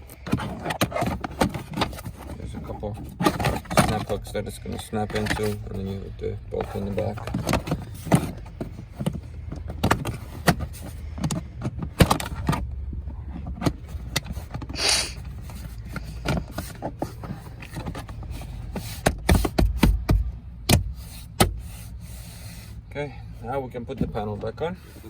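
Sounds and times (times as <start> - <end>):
car door parts clicking and knocking: 0.0 - 5.7, 6.5 - 21.6
short scrape: 14.7 - 15.3
heavy thumps: 19.0 - 21.6.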